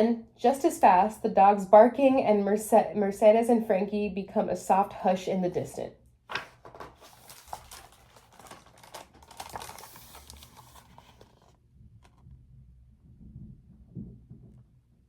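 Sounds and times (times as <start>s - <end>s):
paper pages rustling: 6.3s - 12.2s.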